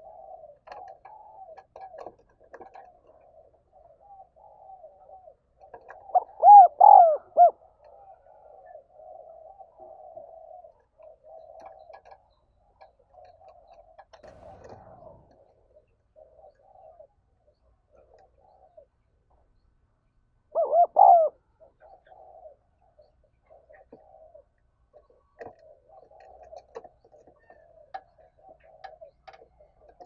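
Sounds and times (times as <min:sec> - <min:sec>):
dove cooing: 0:00.0 - 0:15.1, 0:20.5 - 0:30.0
brief noise: 0:14.2 - 0:15.8.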